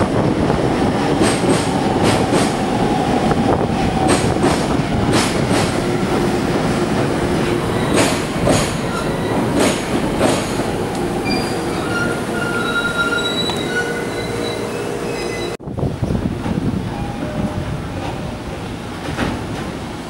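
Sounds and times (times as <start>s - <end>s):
electric train rumbling: 0.0s - 20.0s
high-pitched wheel squeals: 11.2s - 15.6s.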